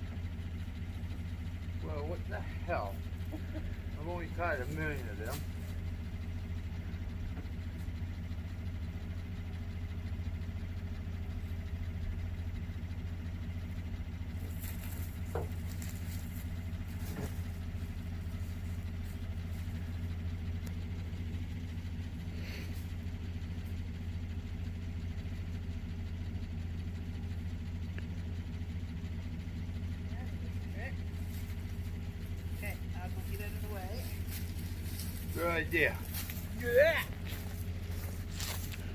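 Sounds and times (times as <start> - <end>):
pickup truck engine idling: 0.0 - 38.9.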